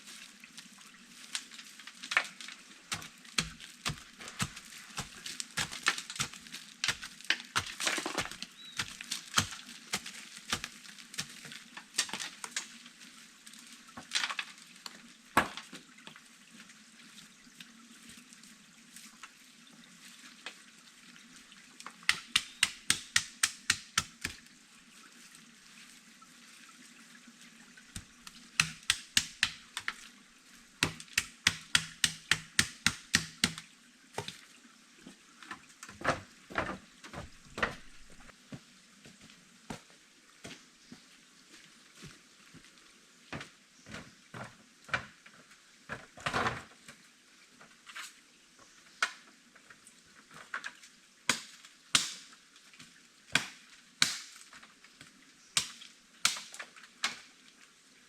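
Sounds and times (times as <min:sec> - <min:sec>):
blade chopping wood: 0:02.9 - 0:11.4, 0:22.1 - 0:24.4, 0:28.0 - 0:30.0, 0:30.8 - 0:33.6, 0:55.6 - 0:56.6.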